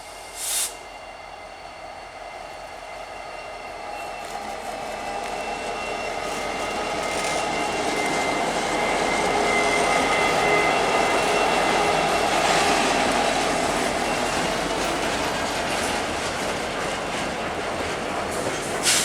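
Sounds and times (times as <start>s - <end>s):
freight train rumble and rattle: 0.0s - 19.0s
wheels ringing on rails: 0.0s - 19.0s.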